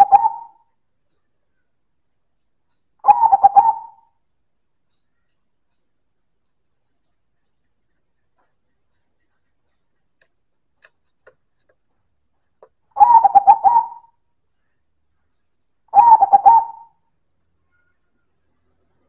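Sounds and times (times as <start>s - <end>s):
dove cooing: 0.0s - 0.7s, 3.0s - 4.2s, 13.0s - 14.2s, 15.9s - 17.0s.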